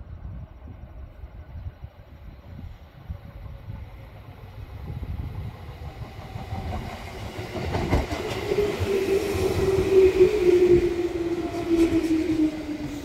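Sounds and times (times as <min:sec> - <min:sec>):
train whine: 0:00.0 - 0:13.0
train wheels clattering over rails: 0:05.5 - 0:13.0.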